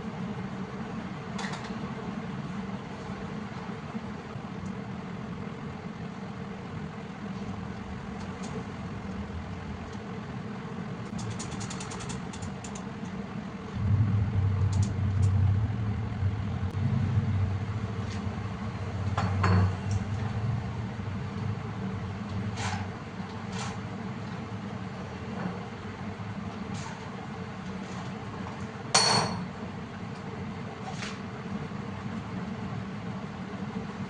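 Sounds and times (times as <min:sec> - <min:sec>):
rapid clicks: 0:11.1 - 0:13.0, 0:14.6 - 0:15.4
milling machine humming: 0:12.2 - 0:28.4
loud low drone: 0:13.7 - 0:23.2.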